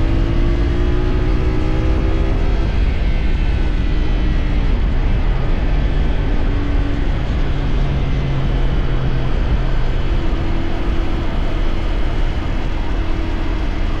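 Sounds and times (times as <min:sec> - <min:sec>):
wind noise: 0:00.0 - 0:14.0.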